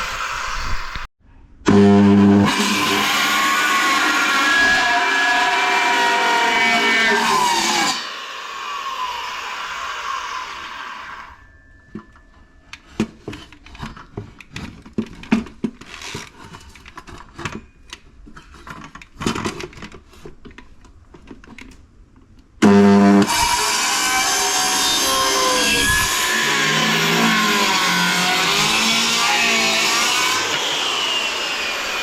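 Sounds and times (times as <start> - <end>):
power saw cutting plywood: 1.7 - 11.4, 22.6 - 32.0
knocks and clatter of handling wood: 11.8 - 22.4.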